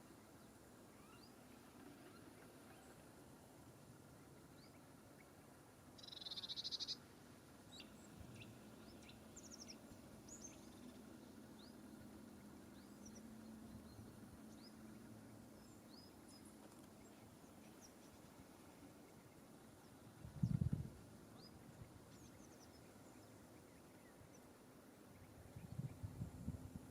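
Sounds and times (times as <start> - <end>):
small birds chirping: 0.0 - 26.9
rapid buzzing bird trill: 6.0 - 7.1.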